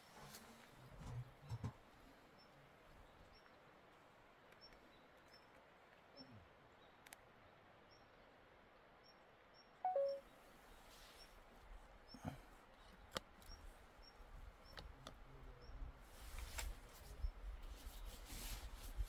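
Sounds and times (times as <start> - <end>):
small bird chirping: 9.0 - 10.3
two-note bird call: 9.9 - 10.2.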